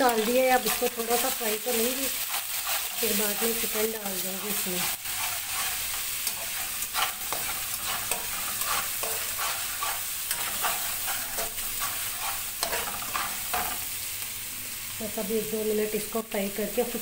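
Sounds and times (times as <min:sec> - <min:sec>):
garlic sizzling in hot oil: 0:00.0 - 0:17.0
spoon clicking and scraping pot: 0:05.2 - 0:13.8.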